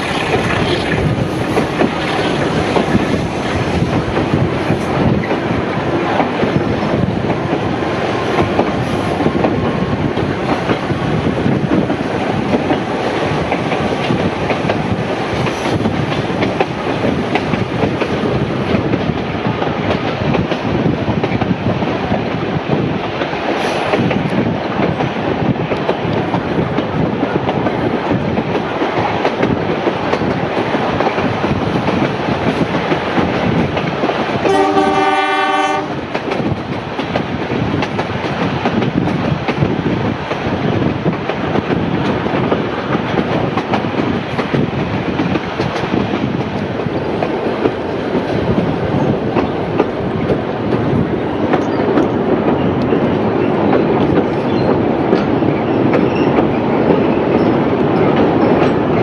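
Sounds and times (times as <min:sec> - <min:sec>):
train wheels on rail: 0:00.0 - 0:59.0
diesel locomotive horn: 0:34.4 - 0:36.0.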